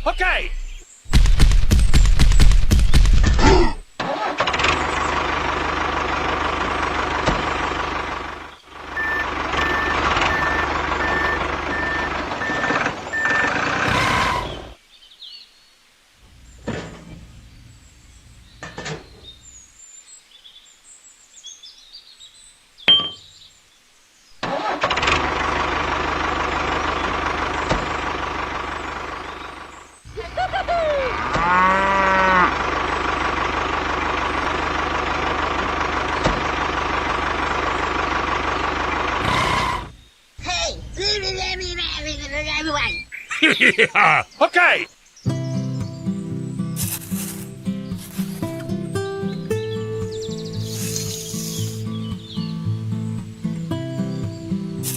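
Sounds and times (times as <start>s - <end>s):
engine running: 1.2s - 14.8s, 24.4s - 40.0s, 45.9s - 54.9s
short beeps: 9.0s - 13.4s.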